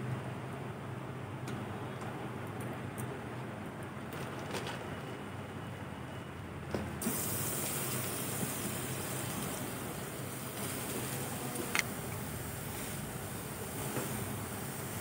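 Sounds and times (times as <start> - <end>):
carrot sizzling in hot fat: 7.0 - 15.0.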